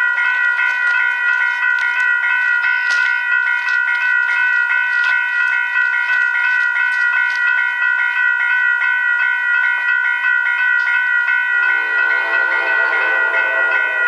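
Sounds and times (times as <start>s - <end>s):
crossing bell ringing: 0.0s - 14.0s
train horn: 11.6s - 14.0s.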